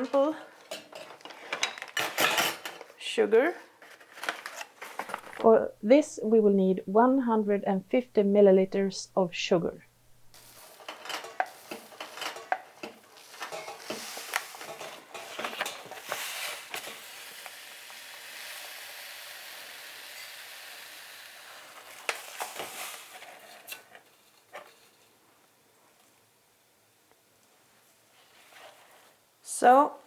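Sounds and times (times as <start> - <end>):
sugar pouring hiss: 15.9 - 23.4.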